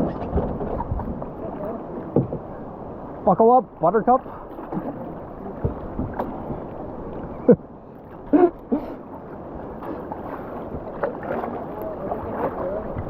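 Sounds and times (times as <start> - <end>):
river water rushing: 1.1 - 13.0
sharp knocks on kayak: 2.1 - 2.4.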